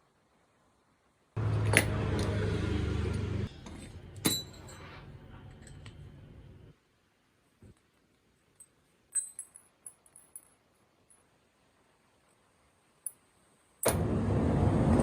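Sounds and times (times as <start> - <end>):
metallic clink: 3.6 - 6.1, 8.5 - 11.4.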